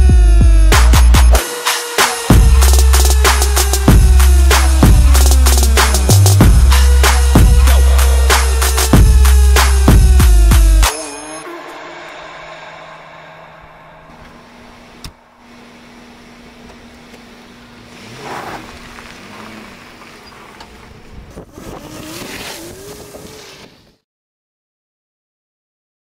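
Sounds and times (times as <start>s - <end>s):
car engine humming: 2.0s - 23.7s.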